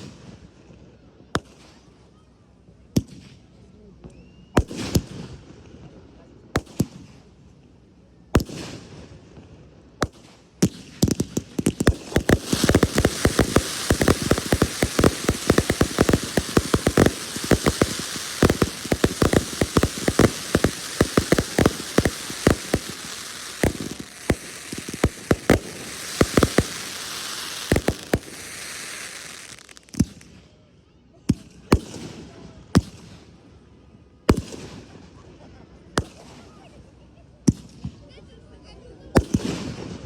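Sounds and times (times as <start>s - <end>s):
fireworks bangs: 10.0s - 30.4s
fireworks crackling hiss: 10.0s - 30.4s.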